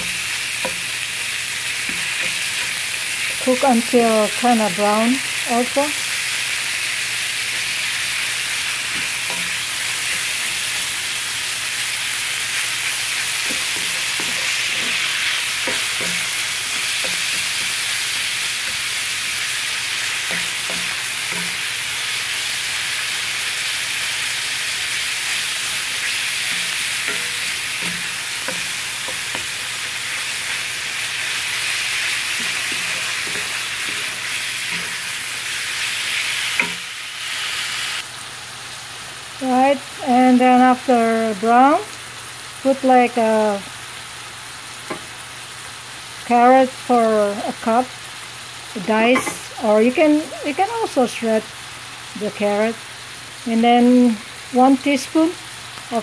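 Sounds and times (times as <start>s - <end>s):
meat and onion sizzling in a skillet: 0.0s - 56.0s
wooden spatula scraping a pan: 25.6s - 30.7s, 31.3s - 36.8s.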